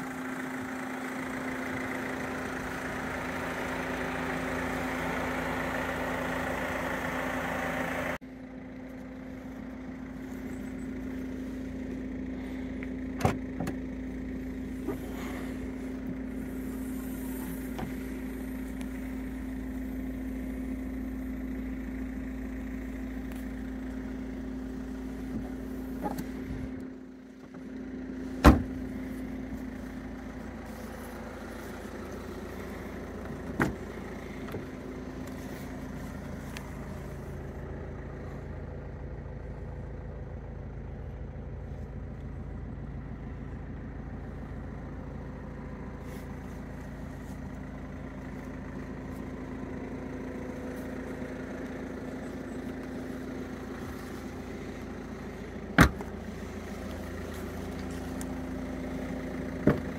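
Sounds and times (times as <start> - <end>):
diesel engine idling: 0.0 - 59.9
car door clunks: 13.2 - 13.8, 28.4 - 28.8, 33.4 - 33.9, 55.8 - 56.2, 59.6 - 59.9.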